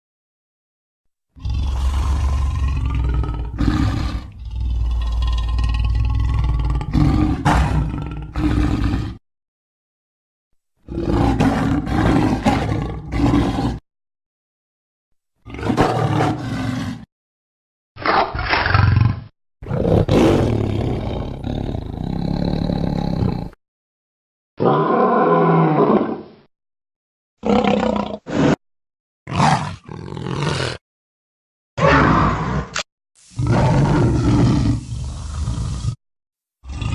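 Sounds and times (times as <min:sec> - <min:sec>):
creature roars and snarls: 0:01.3 - 0:09.2, 0:10.8 - 0:13.8, 0:15.4 - 0:17.1, 0:18.0 - 0:23.6, 0:24.6 - 0:26.3, 0:27.4 - 0:28.6, 0:29.3 - 0:30.8, 0:31.8 - 0:36.0, 0:36.6 - 0:36.9.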